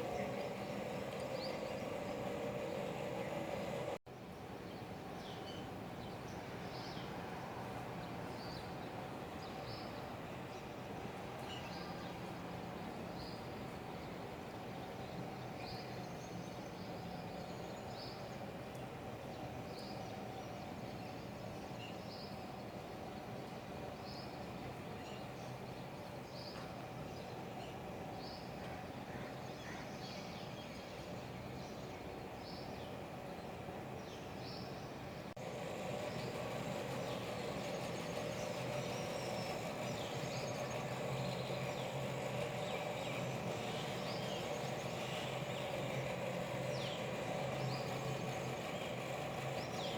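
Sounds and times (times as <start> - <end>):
bird chirping: 0.0 - 4.0, 34.0 - 49.9
outdoor background noise: 0.0 - 49.9
steady background hiss: 0.0 - 49.9.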